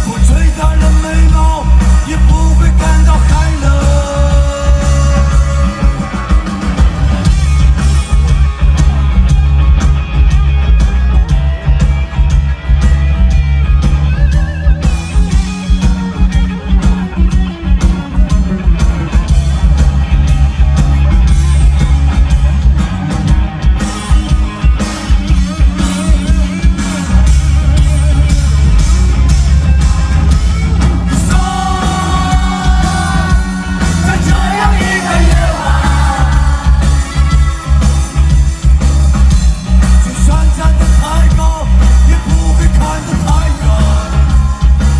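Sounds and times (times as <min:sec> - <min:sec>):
person singing: 0:00.0 - 0:06.4, 0:31.1 - 0:37.6, 0:40.1 - 0:44.7
heavy drum beat: 0:00.0 - 0:44.9
rock band playing live: 0:00.0 - 0:44.9.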